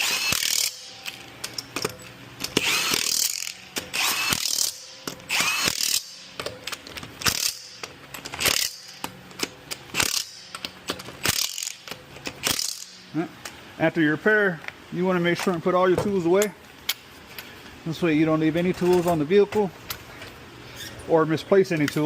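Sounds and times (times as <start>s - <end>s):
impact wrench running lug nuts: 0.0s - 13.1s.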